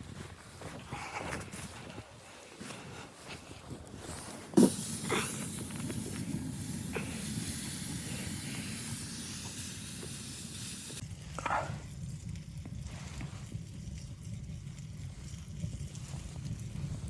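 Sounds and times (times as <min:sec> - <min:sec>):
steady hiss: 0:04.6 - 0:11.0.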